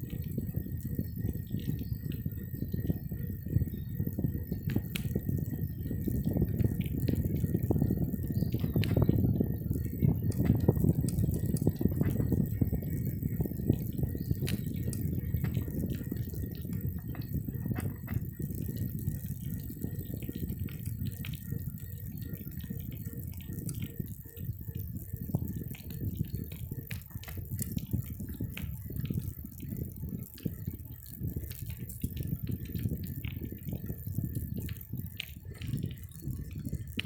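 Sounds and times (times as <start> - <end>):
bicycle riding rumble and rattles: 0.0 - 37.0.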